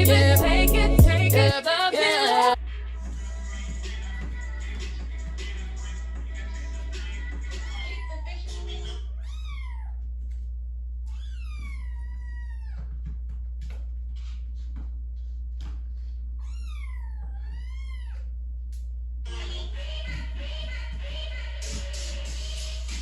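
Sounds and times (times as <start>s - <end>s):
low hum: 0.0s - 1.6s, 17.5s - 19.7s
kitten meowing: 9.2s - 10.0s, 11.1s - 12.9s, 16.4s - 18.2s.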